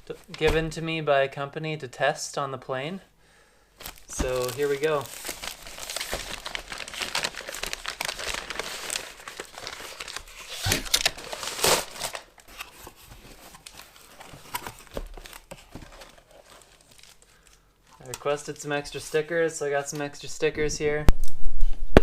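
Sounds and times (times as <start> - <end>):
packaging crinkling and rustling: 3.8 - 19.3.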